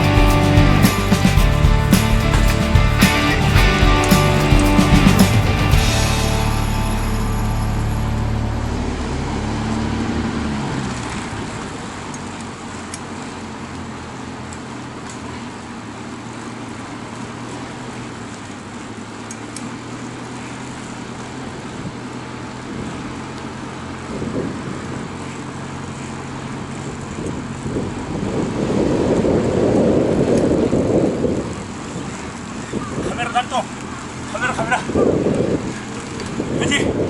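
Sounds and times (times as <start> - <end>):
rushing noise: 0.0 - 11.8
low engine hum: 0.0 - 37.0.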